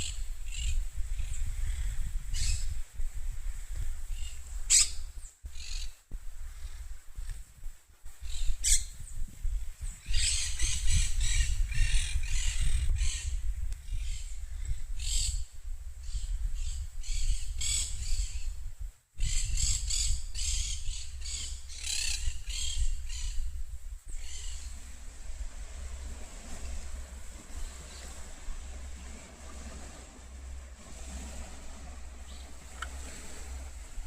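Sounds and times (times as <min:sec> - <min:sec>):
low rumble: 0:23.4 - 0:34.0.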